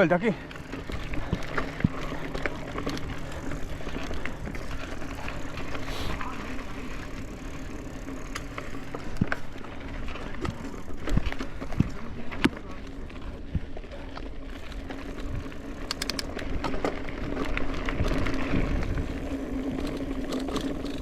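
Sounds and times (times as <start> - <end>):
bike parts rattling: 0.0 - 21.0
bike tyres rumbling on dirt: 0.0 - 21.0
sharp clicks and knocks: 15.8 - 16.3.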